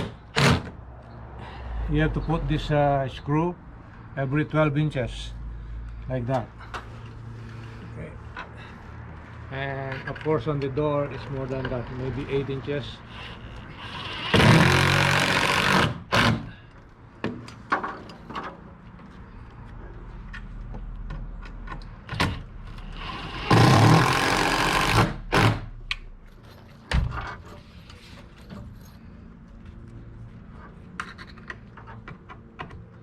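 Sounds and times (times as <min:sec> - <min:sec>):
power drill running: 0:13.8 - 0:16.4, 0:23.0 - 0:25.5.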